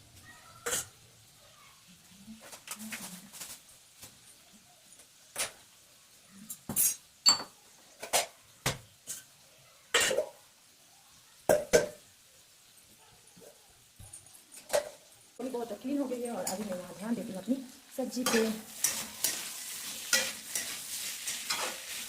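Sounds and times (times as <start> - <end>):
metal dishes clinking: 6.5 - 8.4, 9.9 - 10.4, 18.2 - 21.9.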